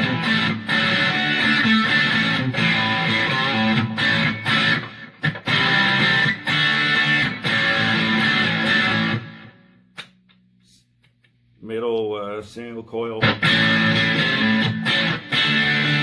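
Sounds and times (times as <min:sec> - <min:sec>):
distorted electric guitar chords: 0:00.0 - 0:10.0, 0:13.2 - 0:16.0.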